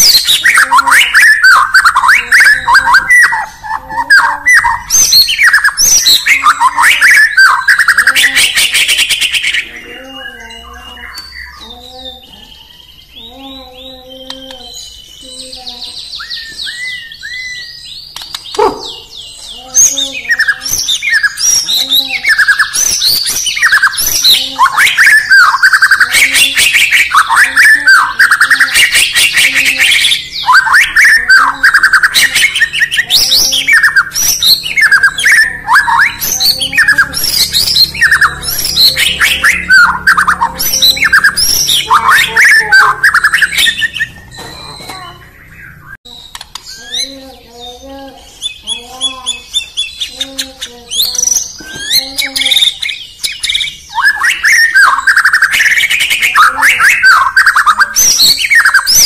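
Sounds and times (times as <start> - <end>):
songbird whistling: 0.0 - 50.2, 50.9 - 59.0
bird chattering clicks: 17.5 - 19.6, 46.2 - 47.1.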